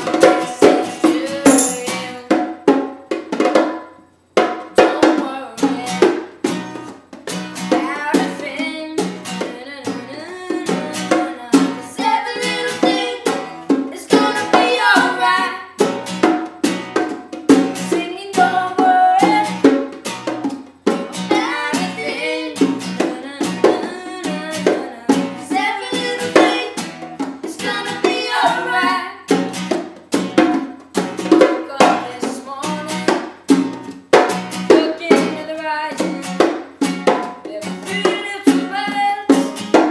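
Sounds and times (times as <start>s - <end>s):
person singing: 0.0s - 2.5s, 8.0s - 15.7s, 17.9s - 19.6s, 21.2s - 26.8s, 27.6s - 29.2s, 31.6s - 33.1s, 34.7s - 36.5s, 37.4s - 39.6s
acoustic string instrument strummed: 0.0s - 39.9s.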